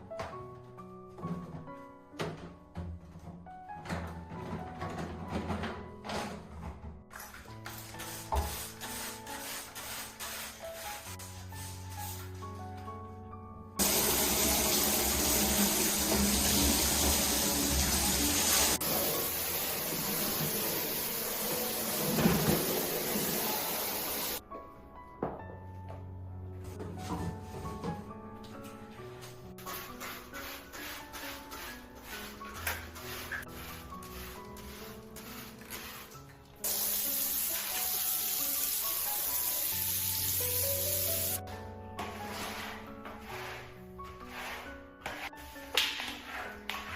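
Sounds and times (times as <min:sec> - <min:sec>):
background music: 0:00.0 - 0:46.9
tap water running: 0:13.8 - 0:24.4, 0:36.6 - 0:41.4.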